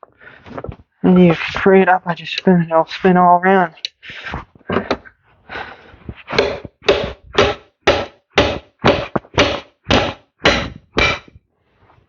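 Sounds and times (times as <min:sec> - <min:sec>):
evenly spaced knocks: 0:06.1 - 0:11.4.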